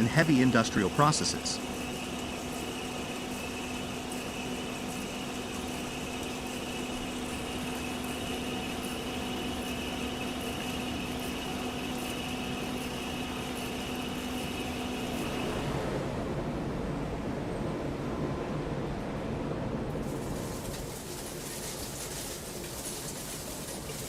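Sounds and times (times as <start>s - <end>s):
milling machine humming: 0.0s - 16.1s.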